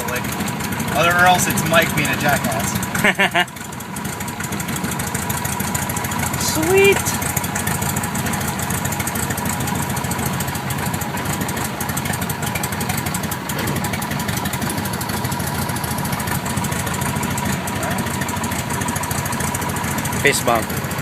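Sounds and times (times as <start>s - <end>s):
propeller plane engine idling: 0.0s - 21.0s.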